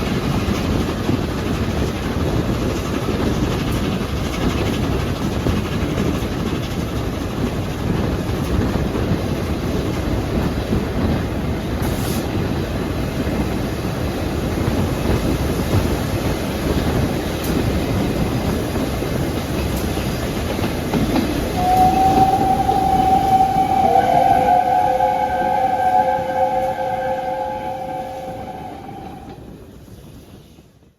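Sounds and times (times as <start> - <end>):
steam train running by: 0.0 - 30.6
steam whistle: 21.5 - 29.4
deeper whistle tone: 21.6 - 29.4.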